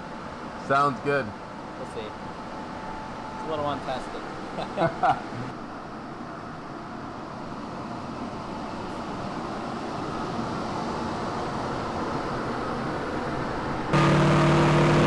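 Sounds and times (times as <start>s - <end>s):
truck engine and roller noise: 14.0s - 15.0s.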